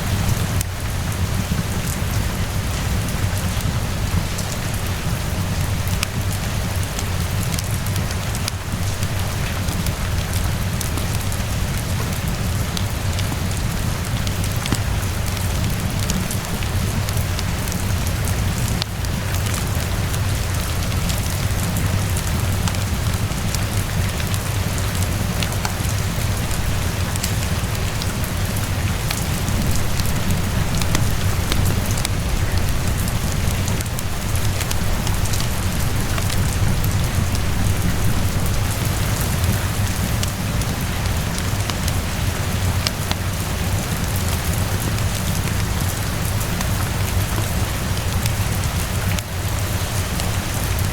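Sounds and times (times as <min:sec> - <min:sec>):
steady rainfall: 0:00.0 - 0:50.9
fireplace crackling: 0:22.2 - 0:40.8
low rumble: 0:26.5 - 0:40.3.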